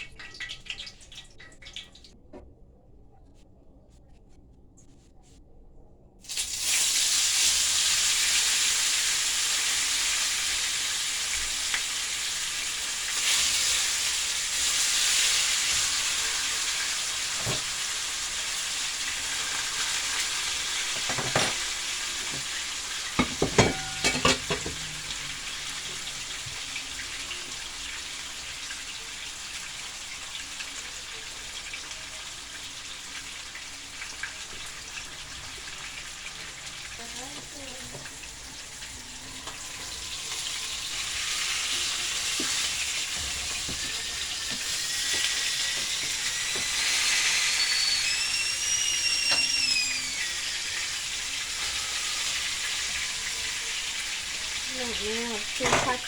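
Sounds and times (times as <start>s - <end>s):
fish sizzling in hot oil: 6.2s - 56.0s
utensil knocking: 23.2s - 25.0s.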